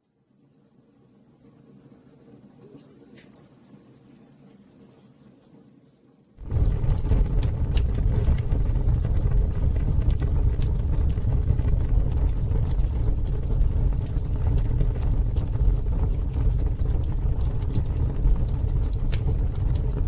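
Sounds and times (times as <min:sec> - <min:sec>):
campfire crackling and popping: 0:06.4 - 0:20.0.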